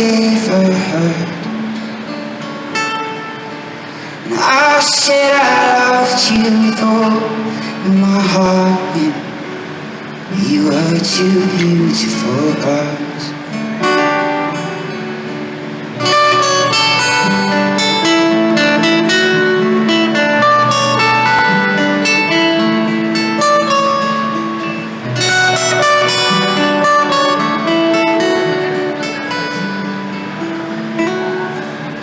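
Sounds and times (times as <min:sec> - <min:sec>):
acoustic guitar playing: 0:00.0 - 0:32.0.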